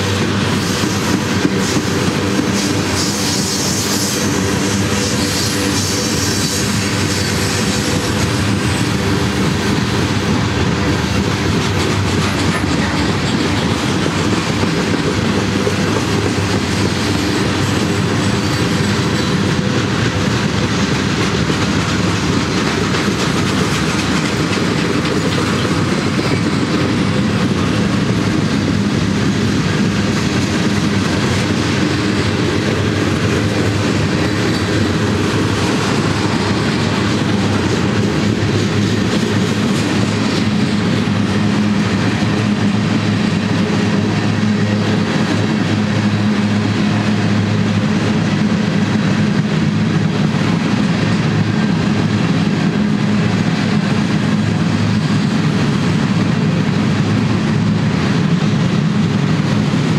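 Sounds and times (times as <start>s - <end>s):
freight train rumbling past: 0.0s - 59.9s
steel wheels rattling on rails: 0.0s - 59.9s.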